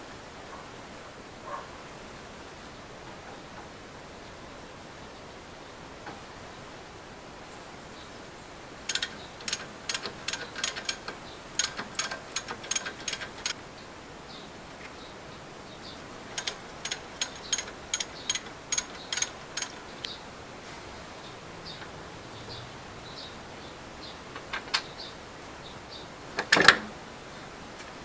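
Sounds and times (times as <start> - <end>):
ratchet wrench clicking: 8.9 - 13.6, 16.3 - 20.1.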